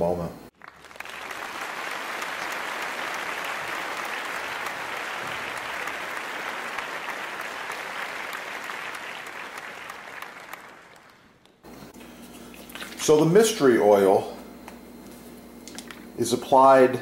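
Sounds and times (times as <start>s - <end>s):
applause: 0.5s - 11.6s.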